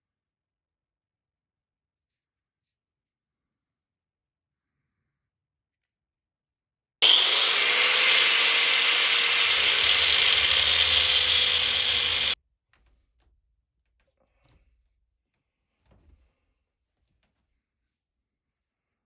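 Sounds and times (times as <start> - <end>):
power tool running: 7.0 - 12.4.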